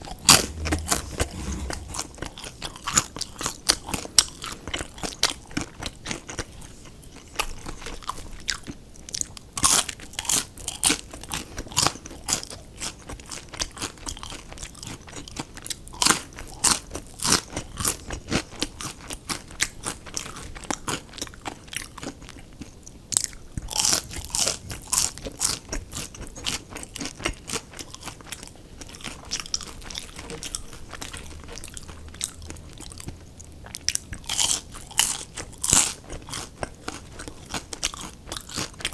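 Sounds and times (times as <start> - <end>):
crunchy food chewing: 26.0 - 38.9.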